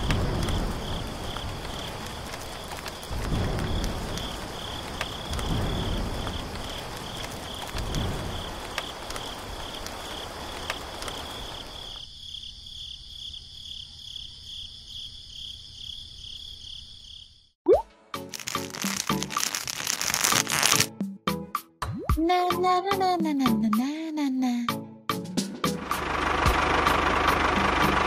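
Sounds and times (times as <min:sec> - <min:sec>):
low thunder rumbles: 0:00.0 - 0:11.8
rain hiss: 0:00.0 - 0:12.0, 0:18.3 - 0:20.9
crickets chirping: 0:00.0 - 0:17.6, 0:18.3 - 0:20.8.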